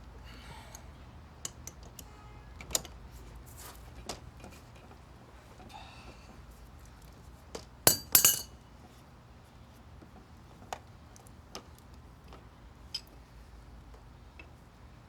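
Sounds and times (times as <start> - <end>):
metal tools clinking on pipe: 7.9 - 8.6.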